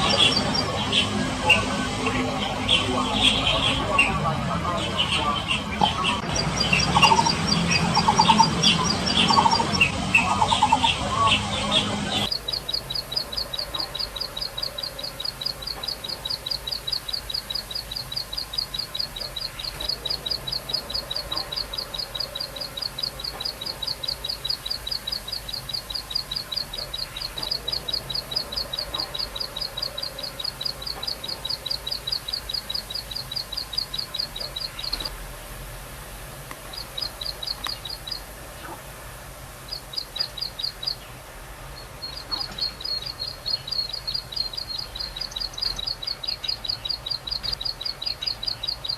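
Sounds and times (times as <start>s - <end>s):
bird singing high repeated notes: 0.0s - 35.1s.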